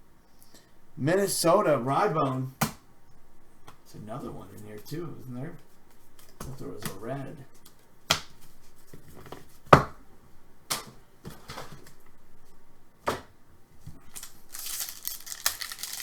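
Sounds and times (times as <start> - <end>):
rustle of card and plastic: 14.0 - 16.0.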